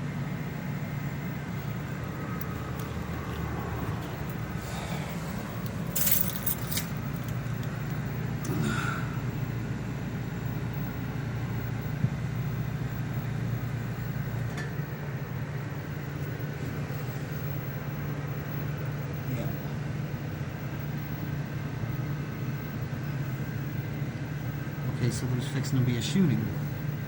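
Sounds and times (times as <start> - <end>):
vehicle engine humming: 0.0 - 19.2.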